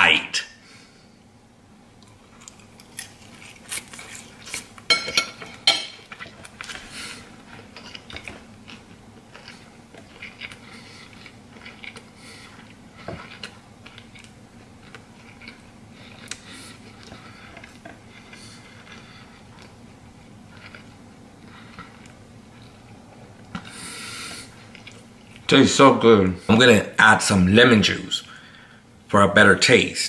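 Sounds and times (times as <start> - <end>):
person chewing crispy food: 2.0 - 4.9, 6.0 - 25.5.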